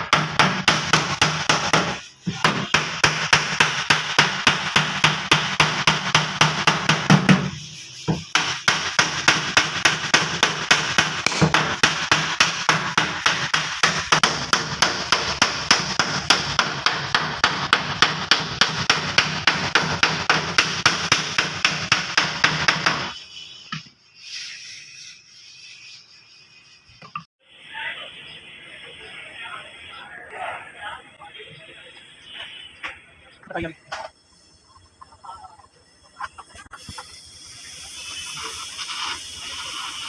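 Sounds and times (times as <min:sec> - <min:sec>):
hammer blows on sheet metal: 0:00.0 - 0:23.2.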